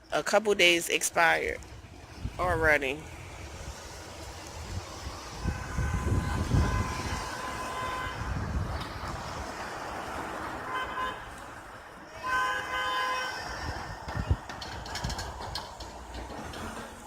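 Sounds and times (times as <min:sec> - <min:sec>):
outdoor background noise: 0:00.0 - 0:17.0
horn blasts: 0:05.4 - 0:08.6, 0:10.6 - 0:11.4, 0:12.1 - 0:13.6.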